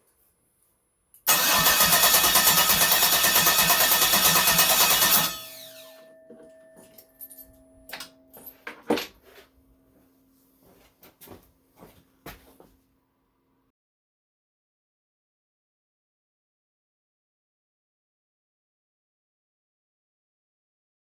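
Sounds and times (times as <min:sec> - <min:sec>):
engine running and spinning down: 0:01.3 - 0:05.9.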